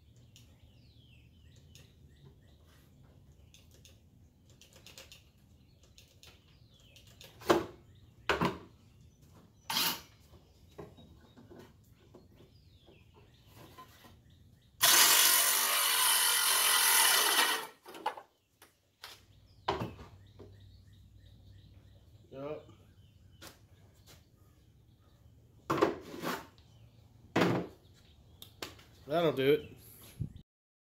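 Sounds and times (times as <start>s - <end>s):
circular saw cutting wood: 14.8s - 18.0s.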